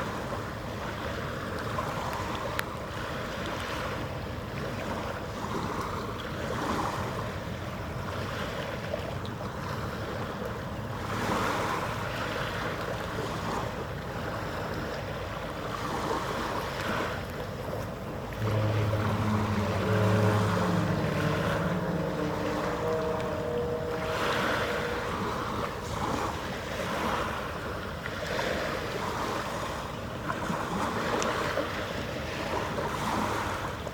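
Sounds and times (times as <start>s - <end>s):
harbour water noise: 0.0s - 33.9s
wind on microphone: 15.6s - 33.9s
low pitched drone: 18.1s - 27.9s.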